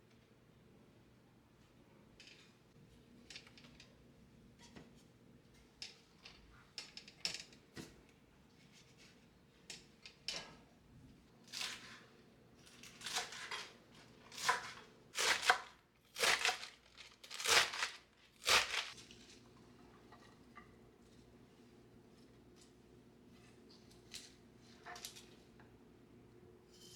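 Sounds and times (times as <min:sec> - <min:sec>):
crinkling rustling strokes: 0:16.2 - 0:19.2.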